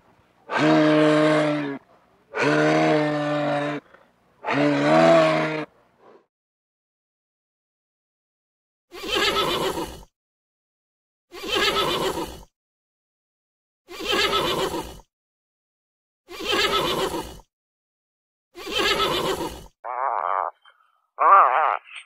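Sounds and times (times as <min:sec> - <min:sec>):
horse neighing: 0:04.5 - 0:05.7, 0:18.6 - 0:22.0.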